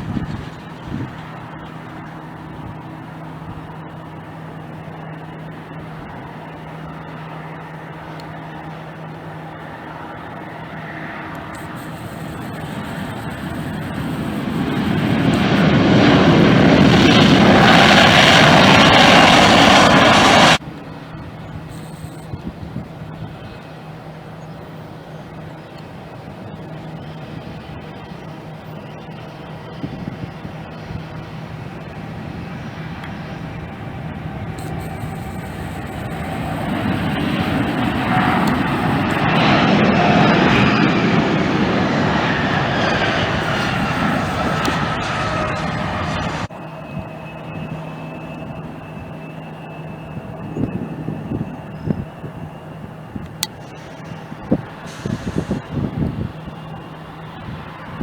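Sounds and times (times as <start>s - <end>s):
airliner engines roaring: 0.0s - 58.0s.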